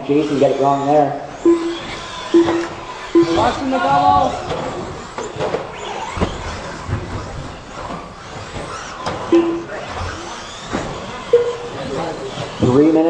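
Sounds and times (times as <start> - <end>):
electric motors and tyres whirring: 0.0 - 13.0
short beep: 1.4 - 3.6, 9.3 - 9.7, 11.3 - 11.7
toy trucks knocking: 1.4 - 11.8.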